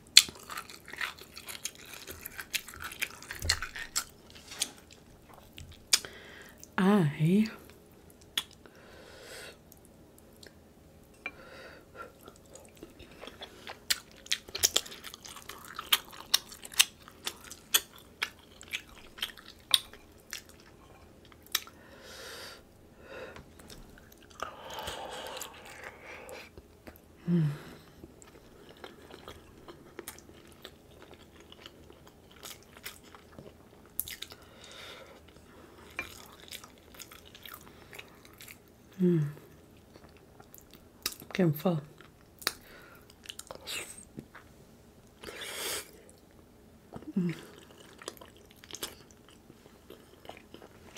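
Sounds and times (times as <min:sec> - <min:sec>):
wet chewing: 0:00.1 - 0:06.1, 0:12.2 - 0:21.8, 0:46.9 - 0:50.9
person humming: 0:27.2 - 0:27.8, 0:39.0 - 0:39.4, 0:47.1 - 0:47.5.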